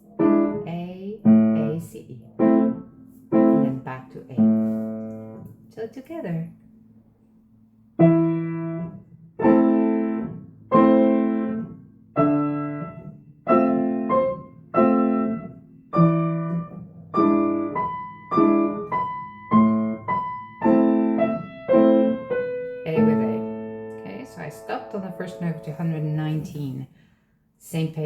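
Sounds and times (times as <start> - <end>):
piano chords: 0.0 - 5.8, 6.6 - 26.9
repeated high piano note: 17.2 - 26.8.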